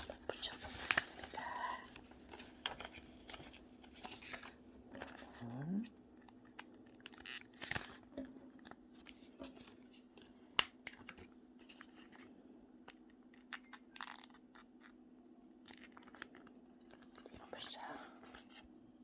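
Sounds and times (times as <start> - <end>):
paper rustling: 0.0 - 5.6.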